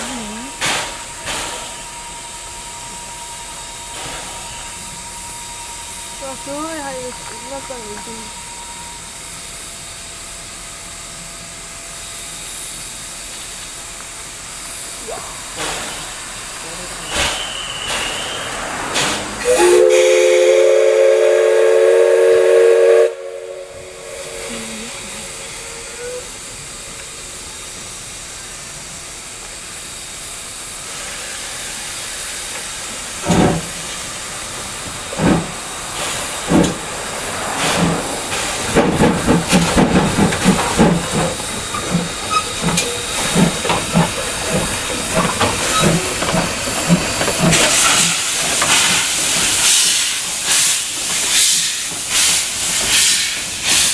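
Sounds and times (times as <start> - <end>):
steam hissing: 0.0 - 53.9
steam locomotive whistle: 16.9 - 26.4
locomotive exhaust chuffing: 32.8 - 53.9.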